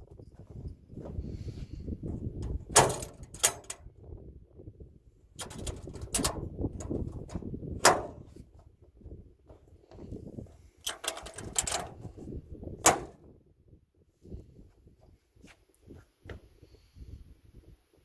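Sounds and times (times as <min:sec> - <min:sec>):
metal latch clacking: 0:02.4 - 0:03.9, 0:05.4 - 0:08.3, 0:10.8 - 0:12.1, 0:12.8 - 0:13.2.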